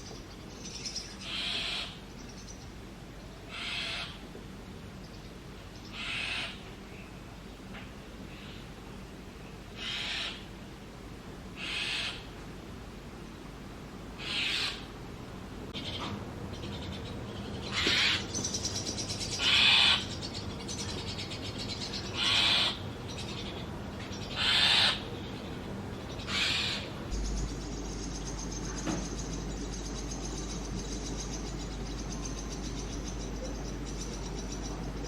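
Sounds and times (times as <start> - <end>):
nestlings raspy hissing calls: 0.7 - 2.0, 3.5 - 4.2, 5.9 - 6.6, 9.8 - 10.4, 11.6 - 12.3, 14.2 - 14.9, 15.8 - 35.0.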